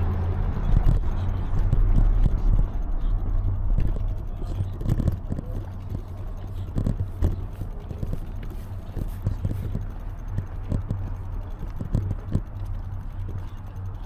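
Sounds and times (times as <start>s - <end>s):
bicycle knocks and rattles: 0.0s - 14.0s
rumble of tyres on pavement: 0.0s - 14.0s
wind: 0.0s - 14.0s.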